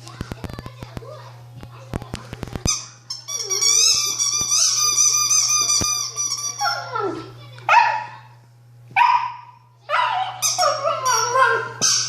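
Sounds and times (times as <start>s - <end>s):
squeaky toy squealing: 2.8s - 6.9s, 10.3s - 12.0s
puppy whining: 9.9s - 12.0s.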